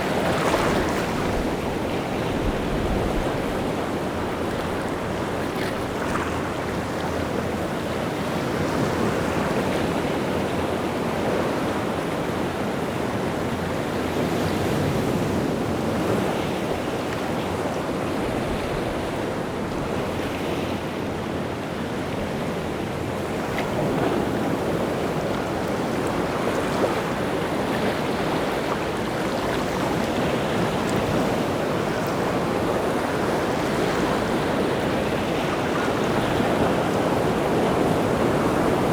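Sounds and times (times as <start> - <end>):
wind: 0.0 - 38.9.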